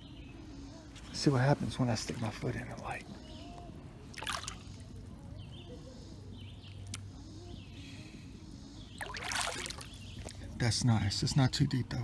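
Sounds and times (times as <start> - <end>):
faint bird chirps: 0.0 - 3.8, 4.5 - 11.8
river ambience: 0.0 - 12.0
water rushing: 9.0 - 10.0.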